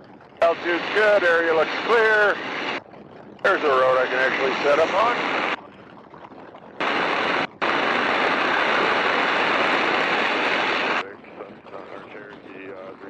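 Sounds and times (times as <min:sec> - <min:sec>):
faint steady whine: 0:00.3 - 0:13.0
wind rushing in microphone: 0:06.8 - 0:11.7.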